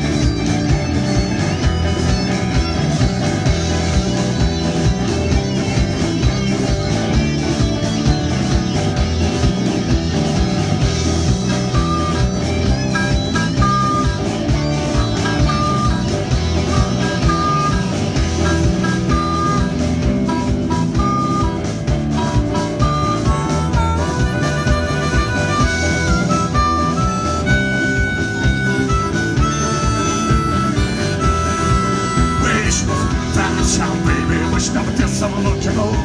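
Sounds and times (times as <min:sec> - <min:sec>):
high guitar notes: 0:00.0 - 0:36.0
live country blues band: 0:00.0 - 0:36.0.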